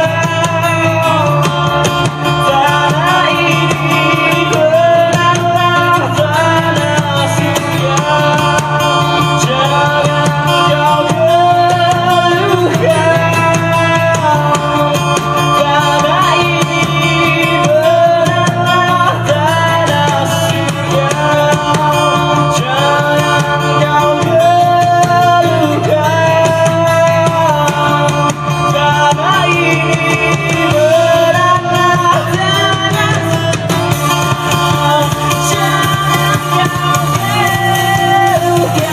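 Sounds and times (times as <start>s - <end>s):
person singing: 0.0s - 38.9s
rock band playing: 0.0s - 38.9s.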